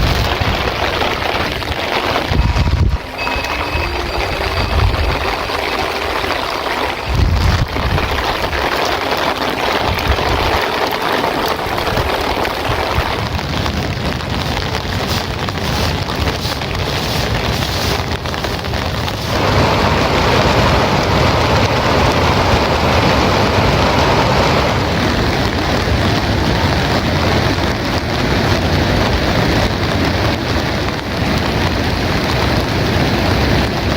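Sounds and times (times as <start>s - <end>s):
heavy rain falling: 0.0s - 33.9s
wind buffeting microphone: 0.0s - 33.9s.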